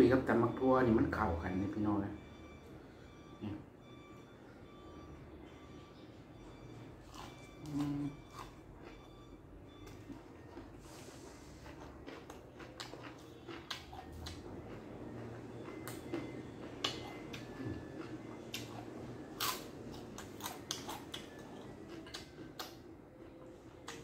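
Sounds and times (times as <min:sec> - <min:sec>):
wet chewing and smacking: 0:06.7 - 0:24.0.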